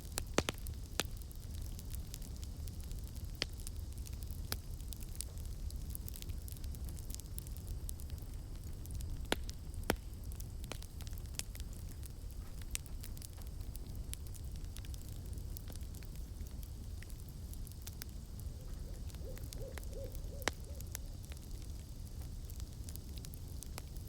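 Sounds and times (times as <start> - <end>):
campfire crackling and popping: 0.0 - 24.0
owl hooting: 18.5 - 20.9.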